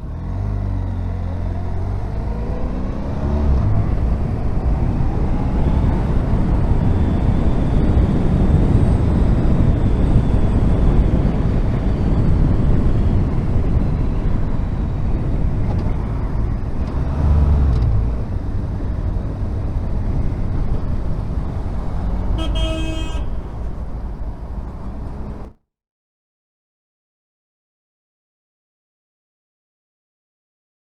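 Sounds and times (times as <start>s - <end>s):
wind rush: 3.7s - 25.5s
vehicle horn toot: 22.3s - 23.8s.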